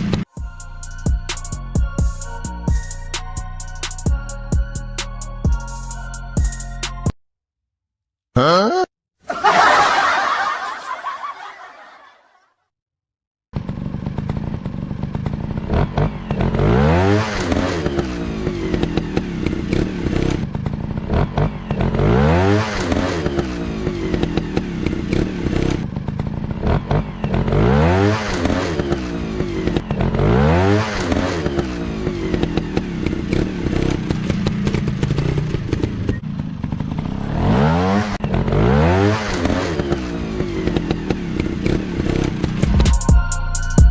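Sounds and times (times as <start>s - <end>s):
dirt bike engine revving: 13.6s - 43.0s.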